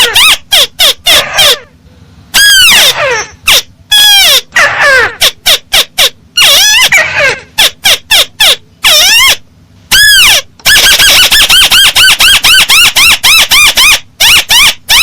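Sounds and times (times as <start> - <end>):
crake calling: 0.0 - 1.7, 2.3 - 15.0.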